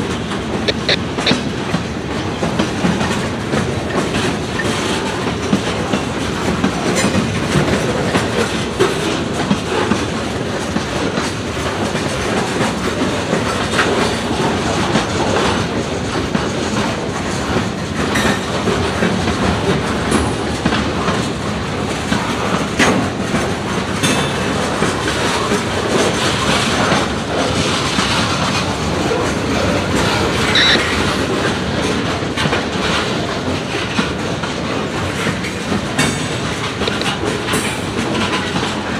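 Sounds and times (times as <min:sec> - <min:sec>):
train wheels clicking over rail joints: 0:00.0 - 0:38.9
high wheel squeal: 0:30.1 - 0:31.2.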